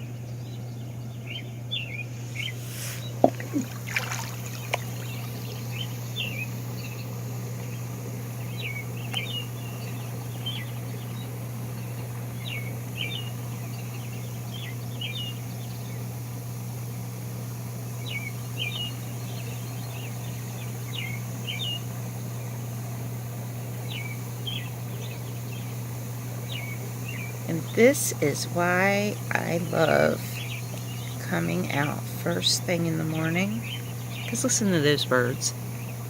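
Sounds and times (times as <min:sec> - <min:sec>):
birds chirping down in pitch: 0:00.0 - 0:17.2, 0:33.0 - 0:36.0
steady low hum: 0:00.0 - 0:36.0.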